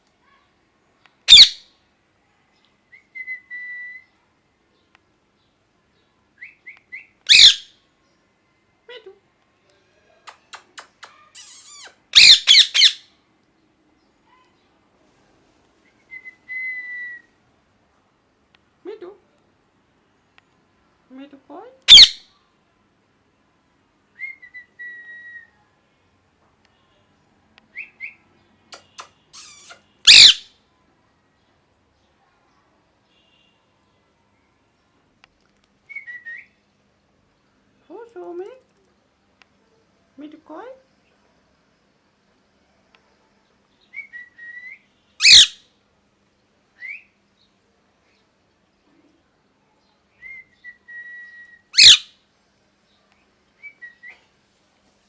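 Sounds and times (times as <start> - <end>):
parakeet chirps: 1.3 - 1.6, 7.3 - 7.7, 10.3 - 13.1, 21.9 - 22.2, 28.8 - 30.5, 45.2 - 45.6, 51.7 - 52.1
parakeet harsh screech: 1.3 - 1.6, 7.3 - 7.6, 11.1 - 13.0, 21.9 - 22.2, 28.8 - 30.4, 45.2 - 45.6, 51.8 - 52.1.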